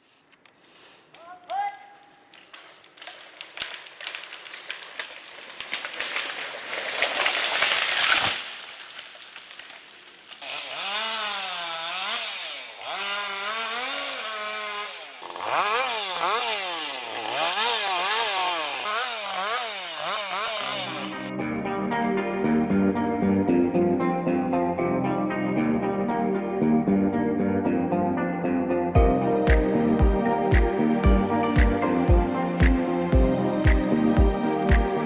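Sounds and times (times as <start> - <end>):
chainsaw revving: 10.3 - 21.3.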